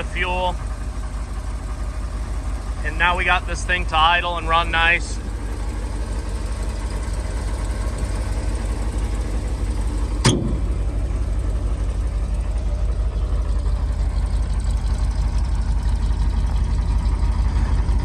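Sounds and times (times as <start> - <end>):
truck engine idling: 0.0 - 18.0
sharp click: 10.2 - 10.7.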